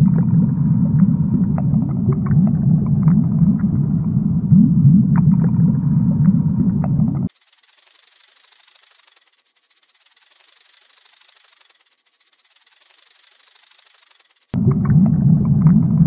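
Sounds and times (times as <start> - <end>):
low underwater rumble: 0.0 - 7.3, 14.6 - 16.0
snake hissing: 7.3 - 14.6.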